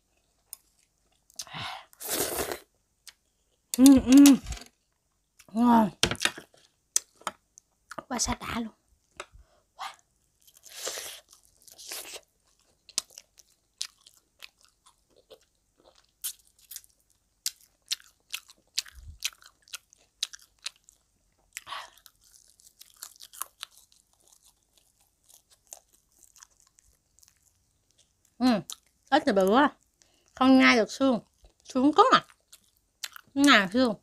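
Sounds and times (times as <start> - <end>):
crunching and chewing: 0.0 - 1.5, 10.2 - 29.1, 31.2 - 33.4.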